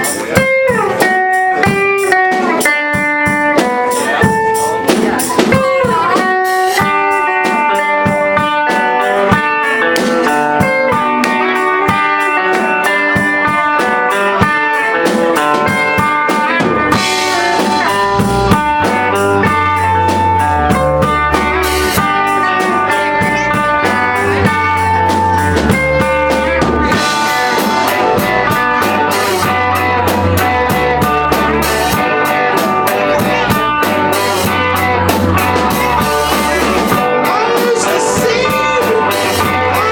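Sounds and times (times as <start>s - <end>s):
drum kit: 0.0s - 39.9s
electric guitar: 0.0s - 39.9s
low bass line: 16.9s - 39.9s.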